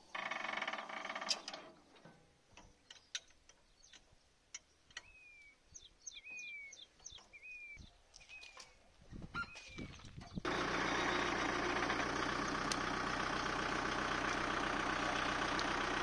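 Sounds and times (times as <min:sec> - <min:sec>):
birds whistling and chirping: 0:04.9 - 0:11.3.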